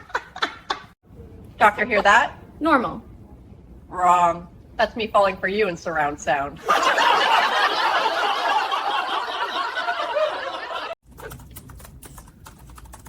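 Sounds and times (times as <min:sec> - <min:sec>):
burst of laughter: 0:06.6 - 0:11.0
keyboard typing: 0:11.1 - 0:13.0.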